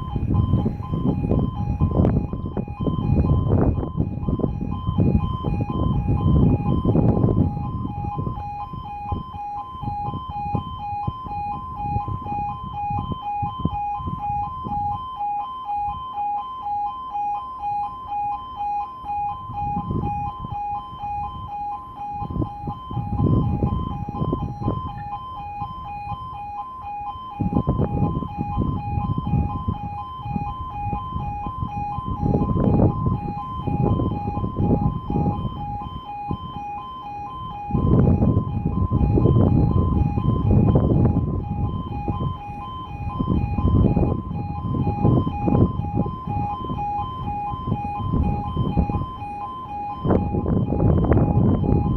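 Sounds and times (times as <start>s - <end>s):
low rumbling: 0.0s - 16.2s, 18.6s - 51.9s
pulsing two-tone alarm warble: 0.0s - 51.9s.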